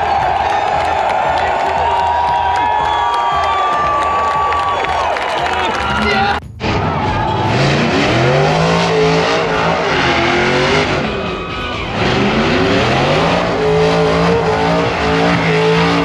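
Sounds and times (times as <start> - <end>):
tyre noise: 0.0 - 16.0
car engine revving: 6.1 - 16.0.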